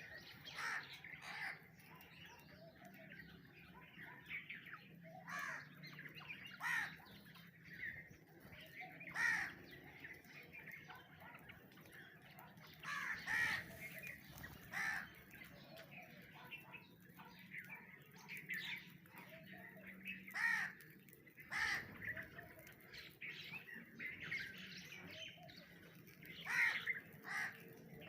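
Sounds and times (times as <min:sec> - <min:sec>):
harsh crow-like bird calls: 0:00.0 - 0:01.9, 0:05.1 - 0:07.3, 0:08.7 - 0:09.9, 0:12.7 - 0:15.8, 0:20.1 - 0:22.6, 0:26.3 - 0:27.8.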